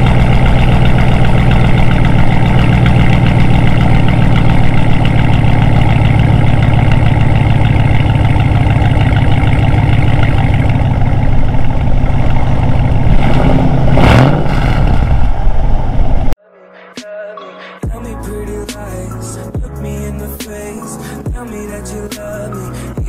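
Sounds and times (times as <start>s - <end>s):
loud engine through straight exhaust: 0.0s - 16.4s.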